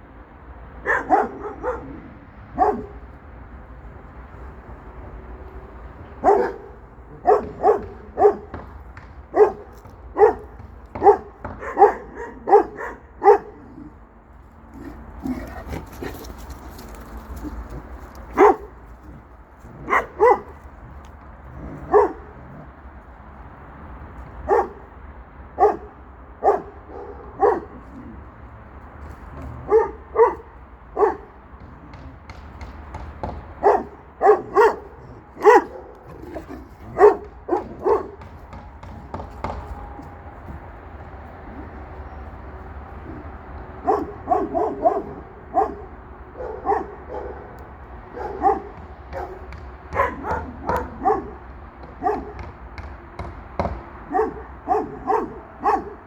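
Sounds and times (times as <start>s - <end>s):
dog barking: 0.8s - 3.1s, 6.2s - 8.6s, 9.3s - 13.9s, 18.3s - 19.2s, 19.8s - 20.6s, 21.6s - 22.6s, 24.4s - 24.9s, 25.6s - 28.0s, 29.4s - 32.0s, 33.2s - 40.1s, 43.8s - 52.5s, 53.6s - 56.0s.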